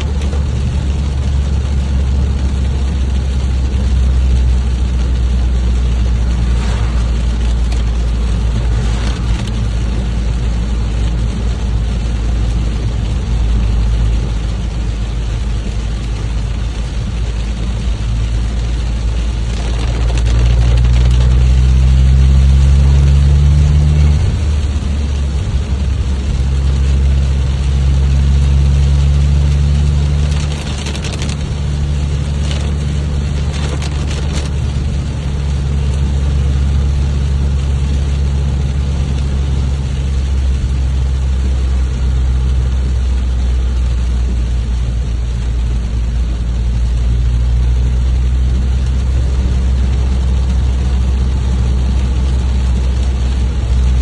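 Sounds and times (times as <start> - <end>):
loud low rumble: 0.0 - 54.0
steady rain hiss: 0.0 - 54.0
brief crackles: 30.2 - 31.5, 33.4 - 34.6.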